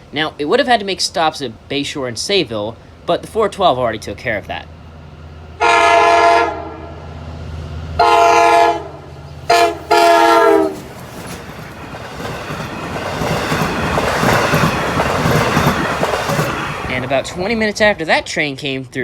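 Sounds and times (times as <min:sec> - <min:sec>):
train rumble and wheel clatter: 0:00.0 - 0:18.8
train horn blasts: 0:05.6 - 0:07.1, 0:08.0 - 0:10.9.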